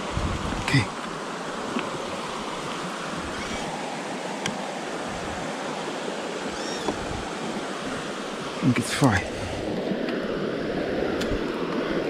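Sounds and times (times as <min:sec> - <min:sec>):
faint bird-like chirps: 0:06.5 - 0:07.0.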